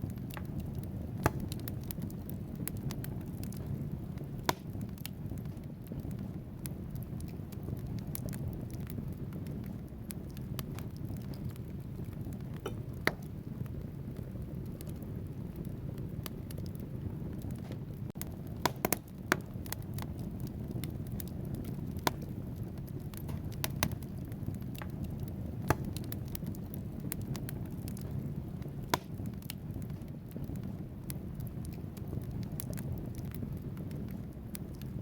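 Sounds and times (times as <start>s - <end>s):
fire crackling: 0.0s - 35.0s
fire flames rushing: 0.0s - 35.0s
logs popping: 0.0s - 35.0s.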